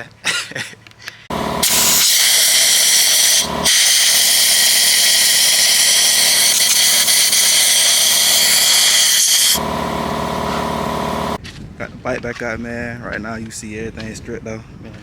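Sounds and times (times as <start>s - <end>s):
air blower blasting: 1.3s - 11.4s
motor hum: 1.3s - 11.4s.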